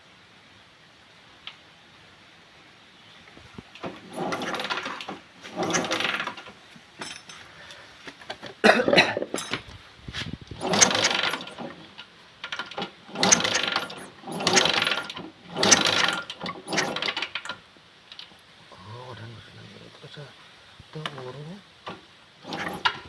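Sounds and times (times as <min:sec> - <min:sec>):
engine cranking: 0:03.8 - 0:06.6, 0:10.6 - 0:18.3, 0:22.4 - 0:23.0.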